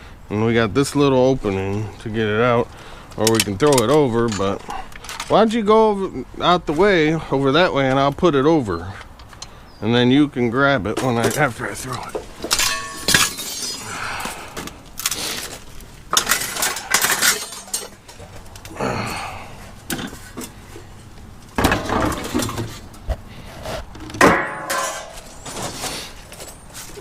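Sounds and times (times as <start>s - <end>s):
scrap metal clanking: 11.0s - 18.4s, 24.0s - 27.0s.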